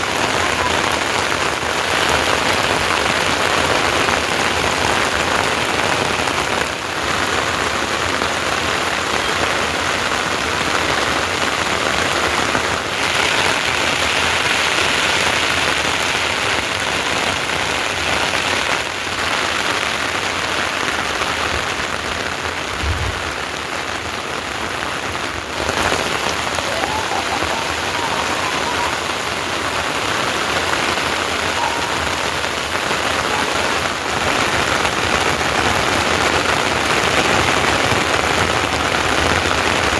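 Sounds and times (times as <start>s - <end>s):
heavy rain falling: 0.0s - 39.9s
low thump: 22.8s - 23.4s.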